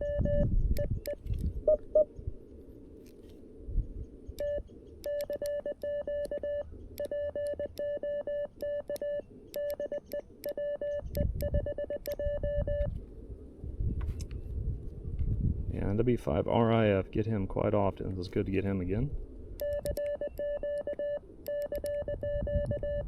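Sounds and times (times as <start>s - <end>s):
morse code tone: 0.0s - 2.1s, 4.4s - 12.9s, 19.6s - 23.0s.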